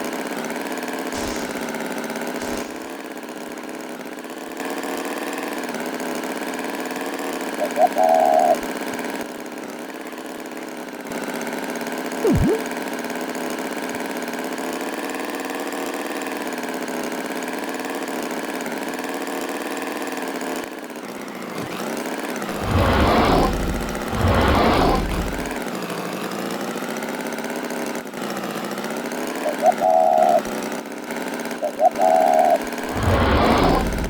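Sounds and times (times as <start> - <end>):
louder bursts: 12.2 - 12.6, 32.7 - 34.0
engine droning: 21.0 - 25.7, 31.5 - 34.0.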